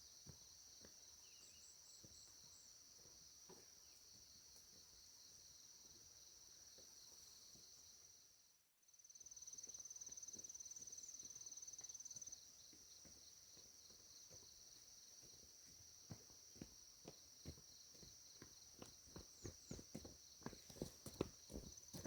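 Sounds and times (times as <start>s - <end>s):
rapidly pulsing insect trill: 0.0s - 22.0s.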